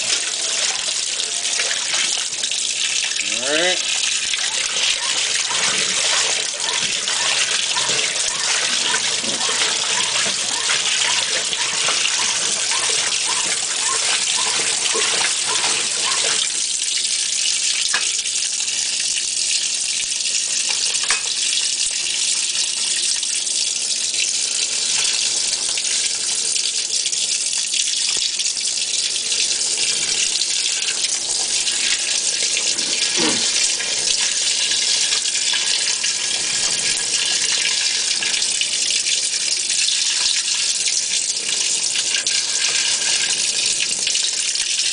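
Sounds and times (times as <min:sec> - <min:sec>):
washer agitator churning: 0:00.0 - 0:18.0, 0:29.2 - 0:44.9
water rushing into washer: 0:00.0 - 0:19.1, 0:28.8 - 0:44.9.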